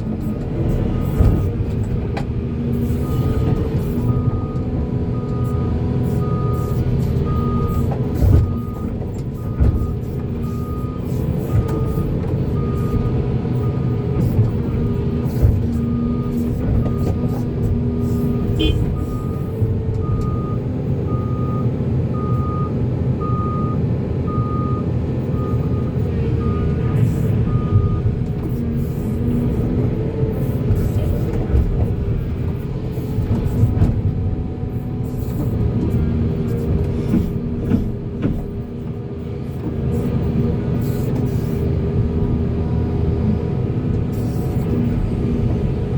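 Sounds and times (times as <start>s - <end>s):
diesel machinery running: 0.0s - 45.9s
reversing alarm beeping: 4.1s - 14.0s, 18.3s - 28.1s
clunks: 25.6s - 39.0s.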